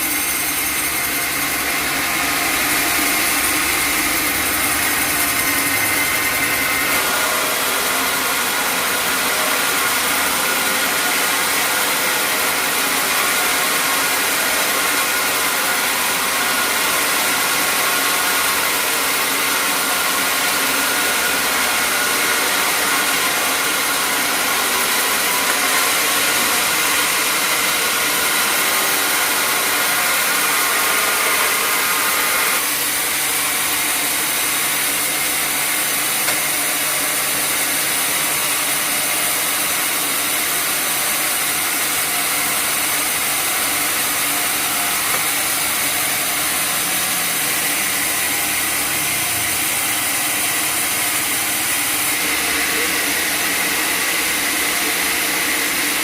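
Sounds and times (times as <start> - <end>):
machinery hum: 0.0 - 7.9
sawmill machinery hissing: 0.0 - 56.0.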